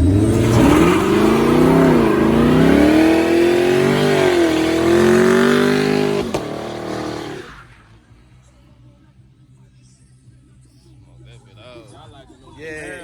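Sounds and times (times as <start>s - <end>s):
vehicle engine revving hard: 0.0s - 7.7s.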